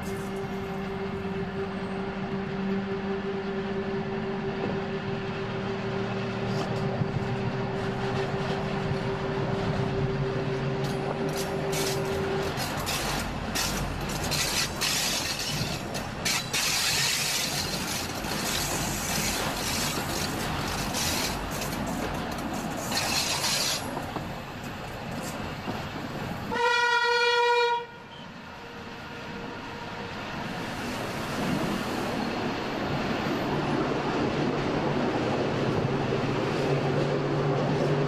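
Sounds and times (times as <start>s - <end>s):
train horn blast: 0.0s - 13.0s, 26.5s - 29.9s
train rolling on rails: 0.0s - 38.0s
train whine: 0.0s - 38.0s
train wheel clicks: 10.8s - 26.2s.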